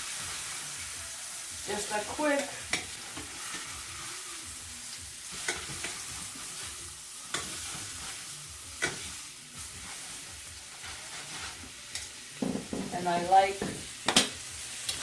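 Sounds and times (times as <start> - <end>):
steaks sizzling in a pan: 0.0 - 15.0.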